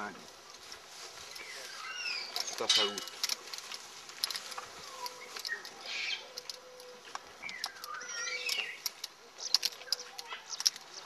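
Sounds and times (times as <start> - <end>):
birds chirping: 0.0 - 11.0
sharp clicks and crackles: 2.3 - 11.0.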